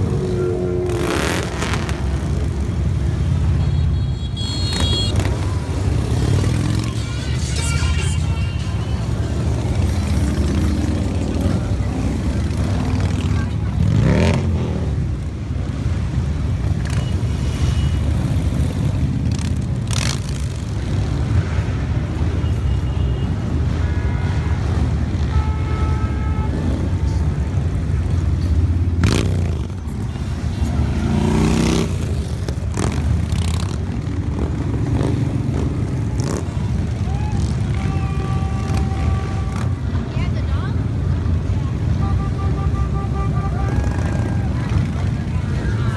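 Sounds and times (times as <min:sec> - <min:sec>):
motorcycle engine revving: 0:00.0 - 0:22.0, 0:26.5 - 0:40.0
motorcycle engines rumbling: 0:00.0 - 0:45.9
motorcycles passing by: 0:00.0 - 0:45.9.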